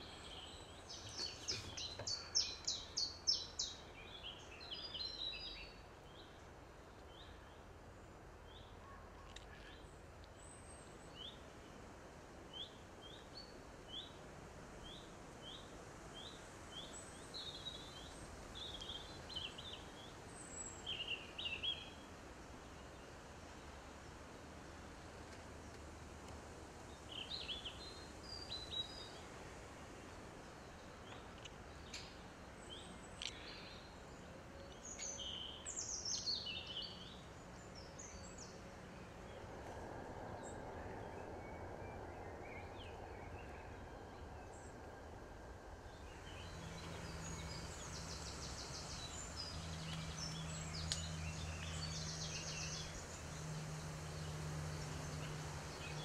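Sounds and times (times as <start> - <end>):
birds singing: 0.0 - 6.4, 8.4 - 11.8, 14.8 - 22.1, 26.9 - 29.3, 29.9 - 39.5, 45.8 - 56.0
low steady hum: 0.0 - 56.0.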